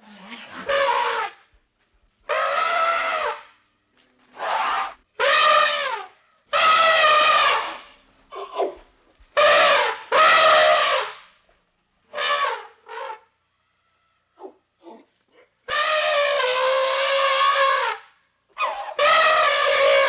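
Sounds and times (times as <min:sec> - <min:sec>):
elephant trumpeting: 0:00.0 - 0:01.4, 0:02.3 - 0:03.5, 0:04.4 - 0:08.8, 0:09.4 - 0:11.2, 0:12.1 - 0:13.3, 0:15.7 - 0:18.0, 0:18.6 - 0:20.0.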